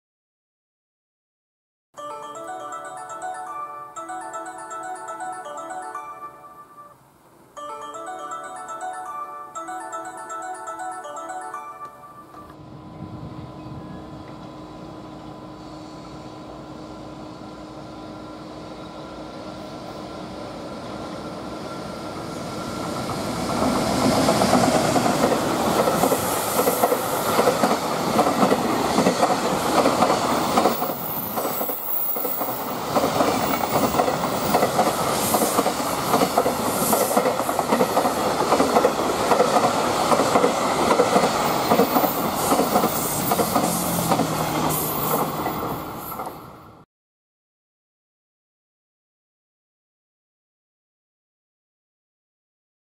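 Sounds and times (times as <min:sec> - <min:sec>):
electric locomotive approaching: 0:12.1 - 0:46.8
train wheels rolling on rails: 0:12.9 - 0:46.8.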